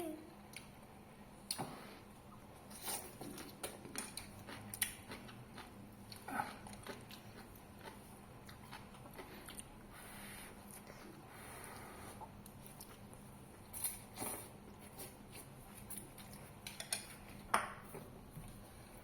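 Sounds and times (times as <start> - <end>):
chewing: 2.7 - 10.0.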